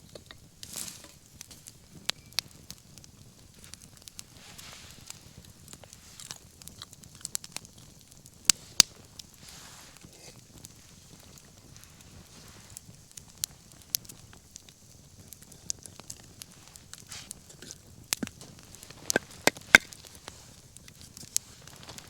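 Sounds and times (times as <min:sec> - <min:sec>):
bonfire hissing and crackling: 0:00.0 - 0:22.0
sharp fire pops: 0:00.0 - 0:22.0.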